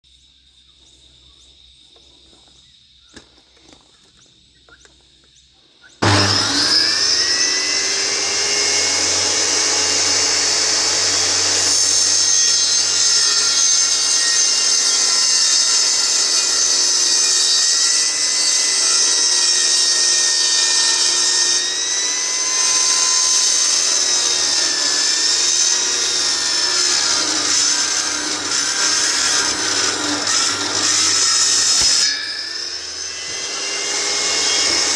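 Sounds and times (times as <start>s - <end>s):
electric saw cutting wood: 6.0s - 34.9s.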